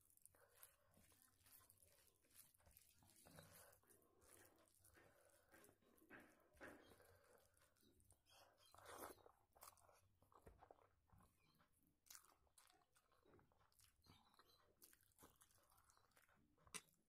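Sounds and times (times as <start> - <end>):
chewing with wet smacks: 0.0 - 17.0.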